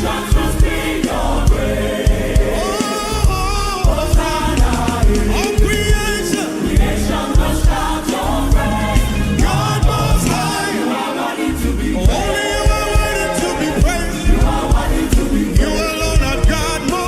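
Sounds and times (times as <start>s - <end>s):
kick drum beat: 0.0s - 2.6s, 3.2s - 10.6s, 12.0s - 16.9s
gospel choir singing with band: 0.0s - 17.0s.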